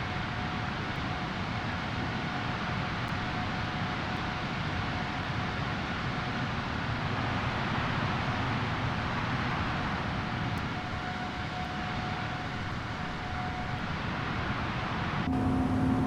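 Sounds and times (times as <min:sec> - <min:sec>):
jet engines droning: 0:05.8 - 0:16.0
low steady hum: 0:15.3 - 0:16.0.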